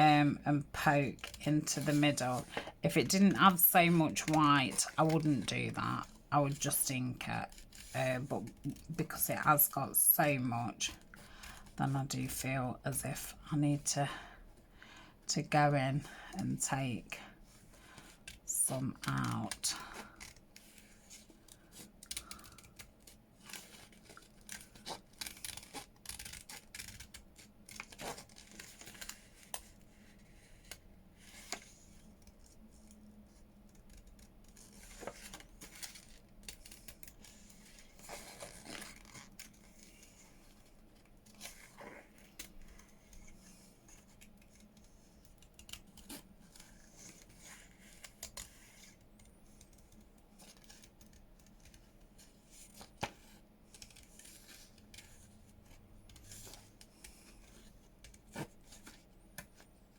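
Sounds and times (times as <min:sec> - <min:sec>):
scissors snipping paper: 0:23.4 - 0:29.5.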